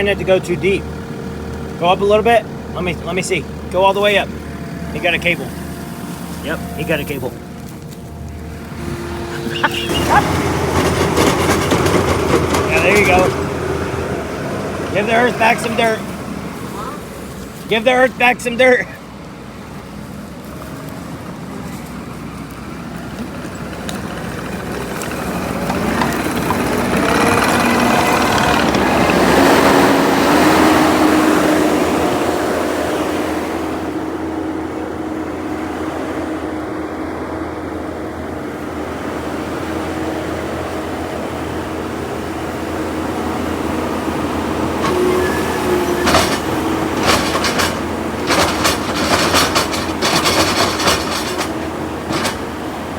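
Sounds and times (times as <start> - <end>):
diesel engine under load: 0.0 - 52.9
sharp knocks: 46.0 - 52.6.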